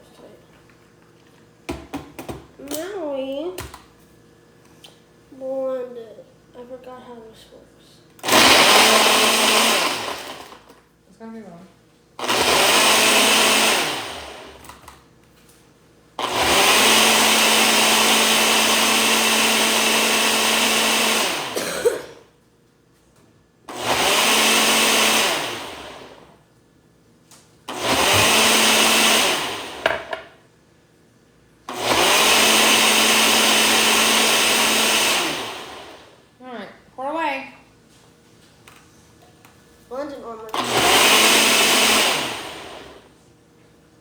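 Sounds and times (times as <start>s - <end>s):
blender motor running: 8.2s - 10.7s, 12.2s - 14.8s, 16.2s - 21.8s, 23.7s - 26.3s, 27.7s - 30.3s, 31.7s - 36.2s, 40.5s - 43.1s.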